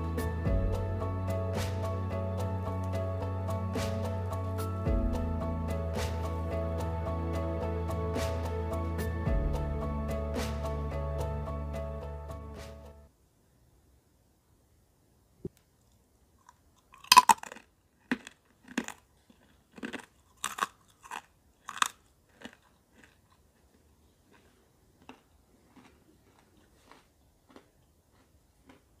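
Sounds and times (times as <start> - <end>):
person crunching crisp snack: 16.4 - 29.0.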